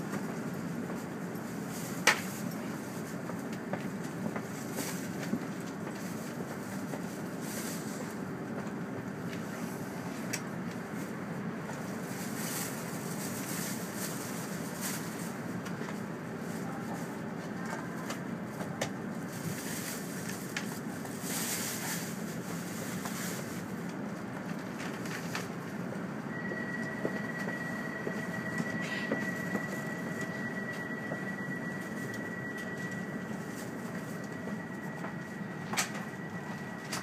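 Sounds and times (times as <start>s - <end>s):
train equipment and ventilation running: 0.0s - 37.0s
steady high tone: 26.3s - 37.0s.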